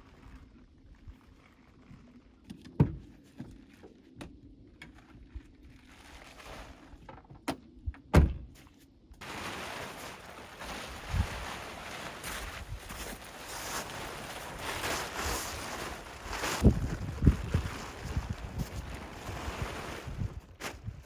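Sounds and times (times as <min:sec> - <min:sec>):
knocks and thunks: 0:07.4 - 0:08.6.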